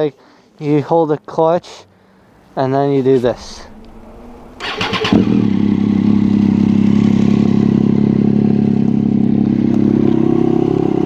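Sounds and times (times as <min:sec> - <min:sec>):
motorcycle engine idling: 0:03.7 - 0:10.0
electric starter cranking: 0:04.6 - 0:05.6.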